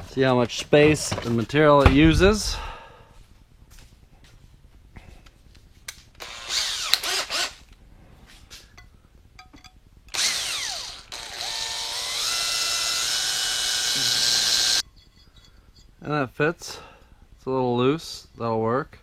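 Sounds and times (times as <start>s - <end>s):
electric drill boring metal: 6.2s - 7.6s, 10.1s - 14.8s.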